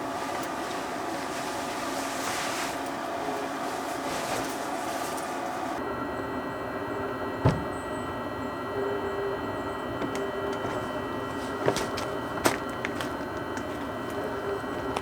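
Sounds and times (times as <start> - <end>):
steady hum of fixed tones: 0.0 - 15.0
low thump: 7.4 - 7.8.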